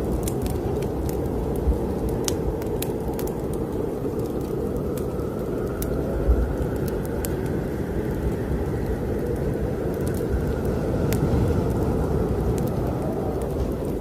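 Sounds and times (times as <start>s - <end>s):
strong wind blowing: 0.0s - 14.0s
wood fire crackling: 0.0s - 14.0s.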